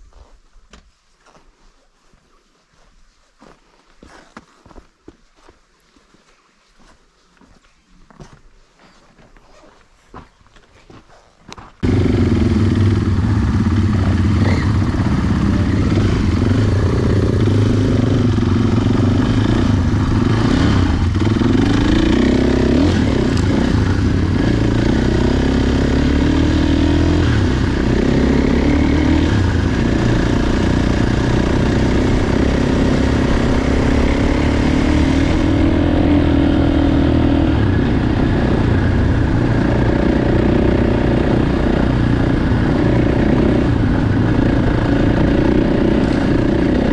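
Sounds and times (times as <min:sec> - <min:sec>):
motorcycle engine revving: 0:11.8 - 0:46.9.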